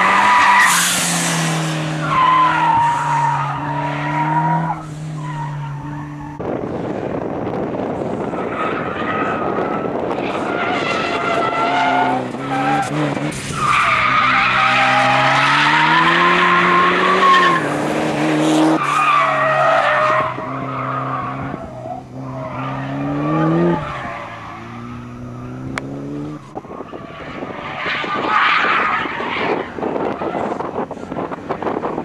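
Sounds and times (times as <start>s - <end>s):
rushing noise of passing car: 0.0s - 32.0s
car engine revving hard: 9.5s - 19.5s, 20.1s - 26.6s.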